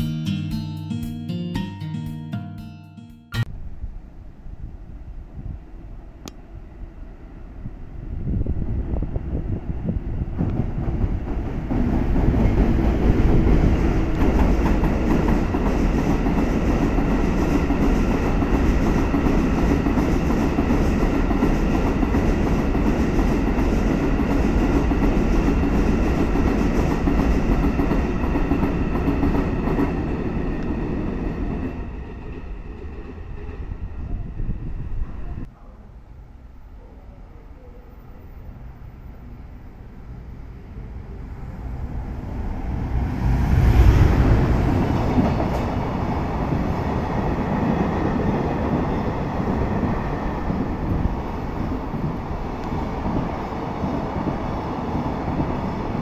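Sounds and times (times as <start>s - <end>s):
wheels rumbling on rail: 3.5s - 36.5s, 37.3s - 56.0s
clickety-clack over rail joints: 10.3s - 31.7s, 44.4s - 49.0s.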